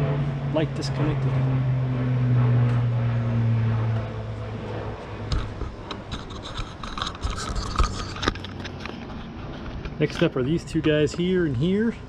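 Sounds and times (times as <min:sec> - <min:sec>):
low hum: 0:00.0 - 0:12.0
hands scratching plastic trim: 0:05.4 - 0:08.8.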